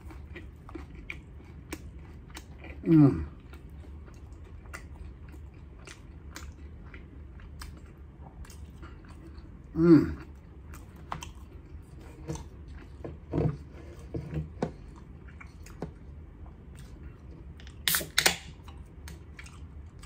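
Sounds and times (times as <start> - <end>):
wet chewing: 0.0 - 9.6, 16.6 - 20.0
can being opened: 17.8 - 18.5.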